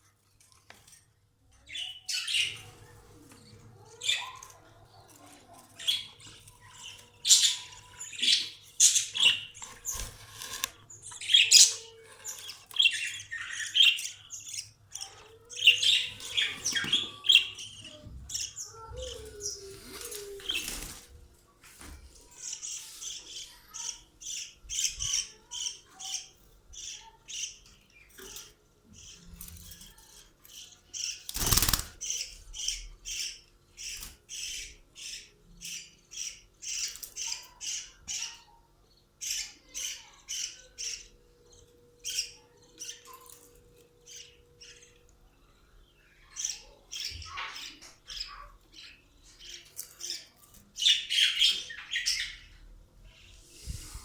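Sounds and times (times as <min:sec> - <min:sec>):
budgerigars chirping: 0:05.8 - 0:19.2.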